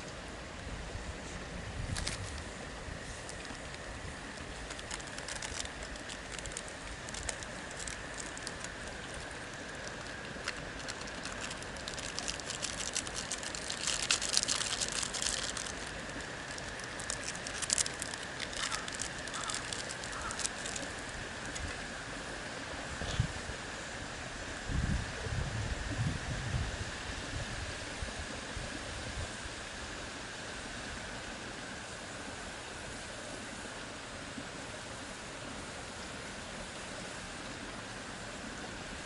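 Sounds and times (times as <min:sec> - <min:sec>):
faint steady hiss: 0:00.0 - 0:39.0
campfire crackling and popping: 0:03.2 - 0:21.7.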